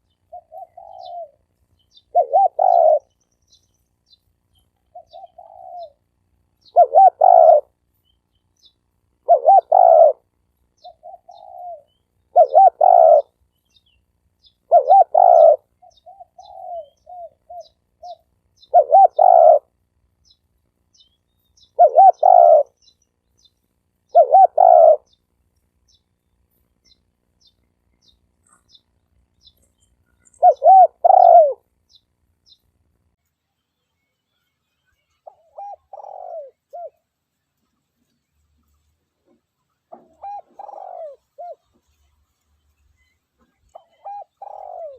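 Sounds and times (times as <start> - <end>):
dove cooing: 0.0 - 3.2, 4.8 - 7.8, 9.2 - 13.4, 14.5 - 19.8, 21.6 - 22.8, 24.1 - 25.2, 29.5 - 31.7, 35.2 - 37.1, 39.2 - 41.9, 43.4 - 44.9.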